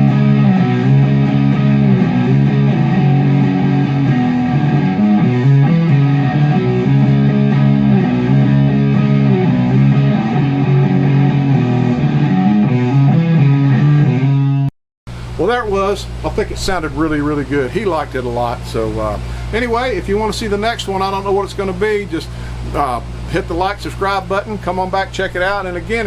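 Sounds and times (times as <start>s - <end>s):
electric guitar chords: 0.0s - 15.4s.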